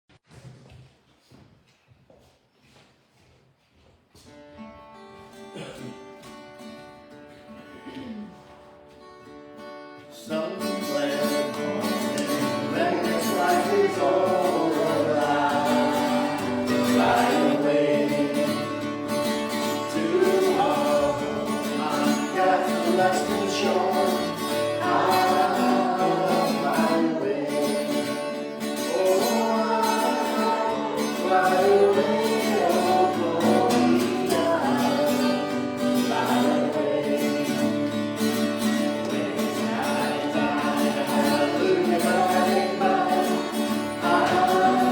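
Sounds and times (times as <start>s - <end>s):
guitar accompaniment: 4.3s - 44.9s
voices singing together: 10.2s - 44.9s.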